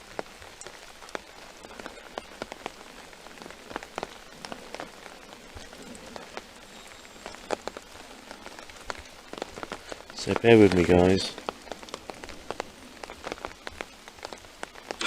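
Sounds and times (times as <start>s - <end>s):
raindrops tapping on umbrella: 0.0s - 15.0s
steady rain: 0.0s - 15.0s.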